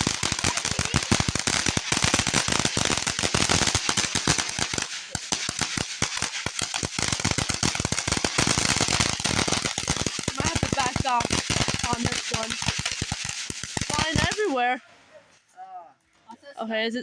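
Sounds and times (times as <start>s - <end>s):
fireworks popping and crackling: 0.0s - 15.5s.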